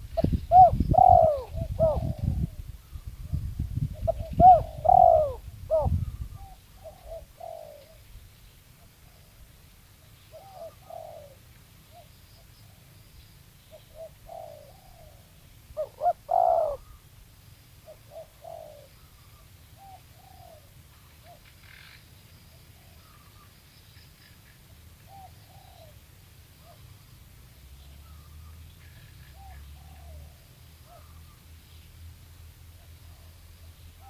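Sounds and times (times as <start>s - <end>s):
dove cooing: 0.0s - 2.6s, 4.0s - 8.0s, 10.3s - 12.1s, 13.7s - 17.1s, 17.8s - 21.9s, 25.1s - 26.0s, 29.3s - 31.3s.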